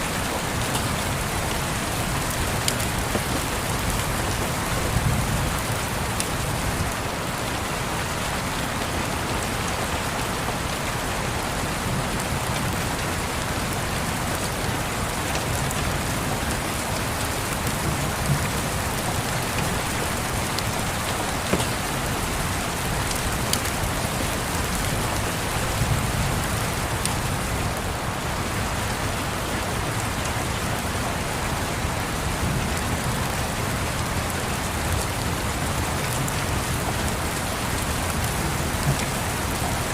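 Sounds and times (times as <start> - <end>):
fireplace crackles: 0.0 - 7.1, 16.1 - 27.1
rain pattering: 0.0 - 39.9.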